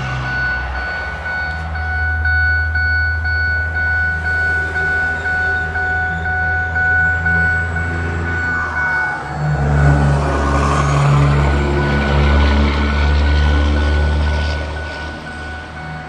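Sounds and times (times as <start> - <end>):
faint high tone: 0.2 - 12.1.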